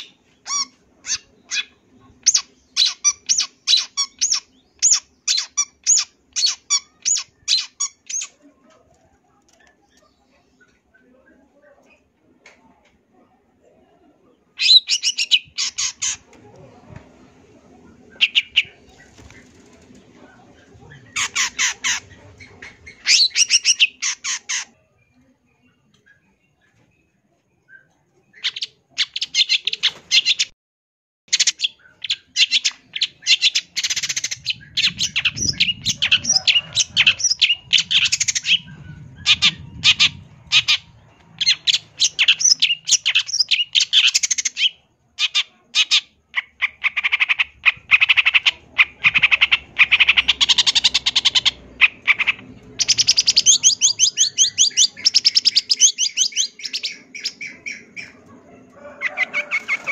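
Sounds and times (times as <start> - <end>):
shrike singing: 31.3 - 44.8.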